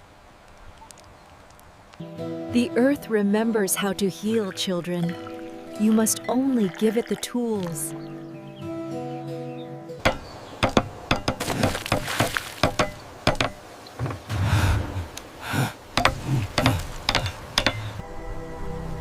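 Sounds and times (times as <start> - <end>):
sharp knocks and clinks: 10.0 - 13.6, 16.0 - 18.0.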